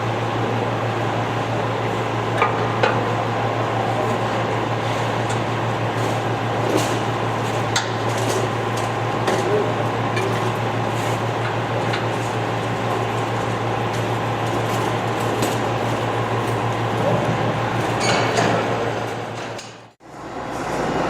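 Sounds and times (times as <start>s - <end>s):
grinder humming and whirring: 0.0s - 19.9s.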